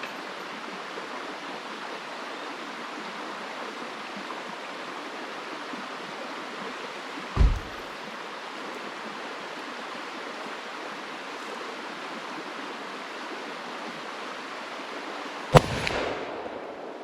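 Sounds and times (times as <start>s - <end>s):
rushing background noise: 7.4s - 7.9s
handgun shot: 15.6s - 17.0s.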